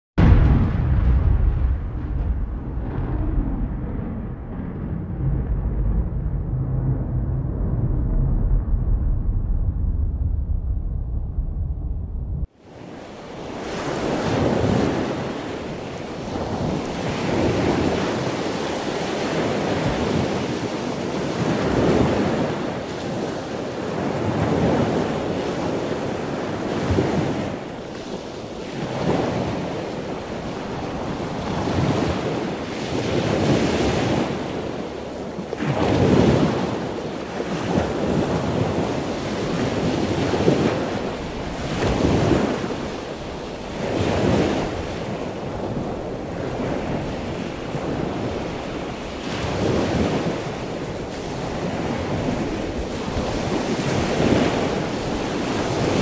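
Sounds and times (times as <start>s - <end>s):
small waves breaking on beach: 12.5s - 56.0s.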